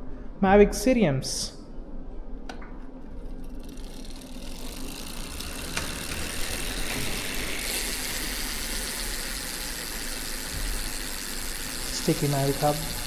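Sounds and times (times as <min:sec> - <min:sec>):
bicycle freehub ratcheting buzz: 0:03.0 - 0:13.0
person speaking: 0:11.9 - 0:13.0.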